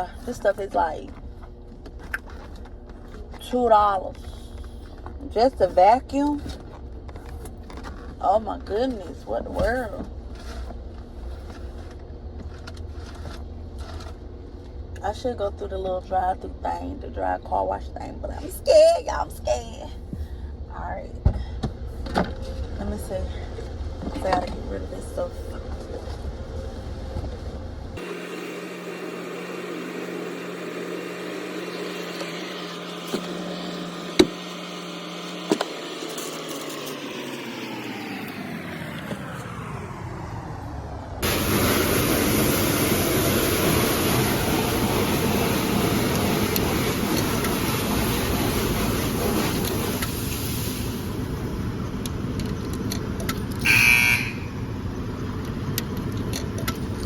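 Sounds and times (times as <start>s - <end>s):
motor hum: 0.0s - 50.2s
car wash vacuum running: 0.0s - 57.0s
loud buzzing tone: 28.0s - 36.2s, 53.6s - 54.8s.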